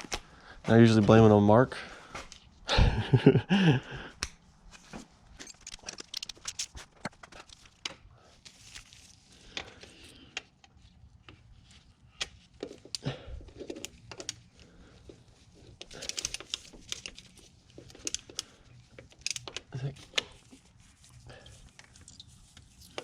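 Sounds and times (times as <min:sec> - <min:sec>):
loud clatter of tools: 0:05.4 - 0:07.6.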